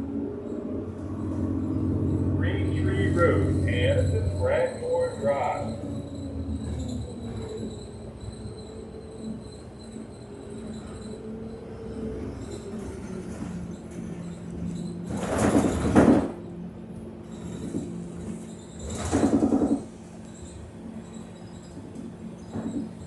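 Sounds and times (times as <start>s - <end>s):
pulsing rumbles: 0.0s - 14.9s
bus interior drone with whining: 0.0s - 23.0s.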